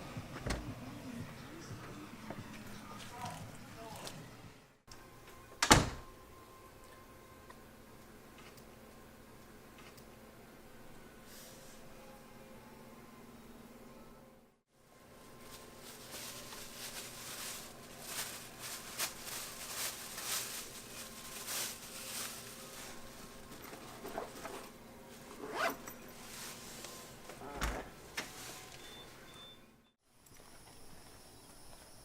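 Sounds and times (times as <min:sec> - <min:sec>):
rustling and scraping: 0:15.3 - 0:28.8.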